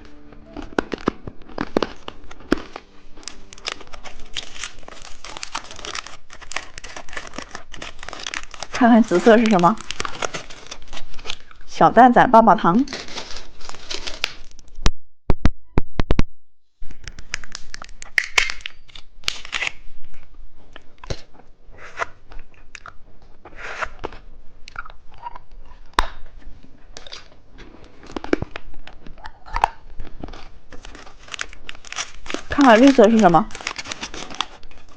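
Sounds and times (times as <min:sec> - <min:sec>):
plastic wrapper crinkling: 0:00.0 - 0:11.7, 0:12.7 - 0:14.8, 0:16.8 - 0:20.3, 0:27.0 - 0:34.9.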